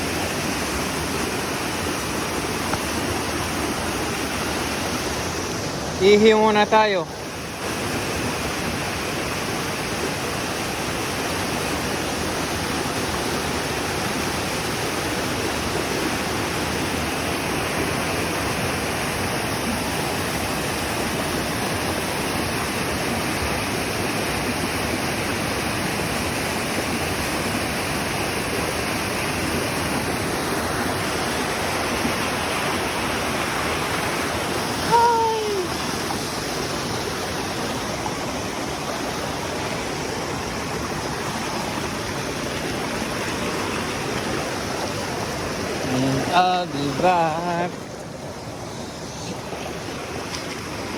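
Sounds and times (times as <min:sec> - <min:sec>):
waterfall and stream rushing: 0:00.0 - 0:50.9
short falling call: 0:34.8 - 0:35.8.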